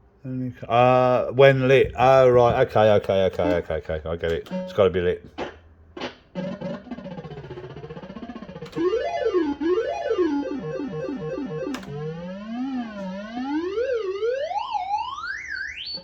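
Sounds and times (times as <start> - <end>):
run of falling notes: 6.4 - 15.9.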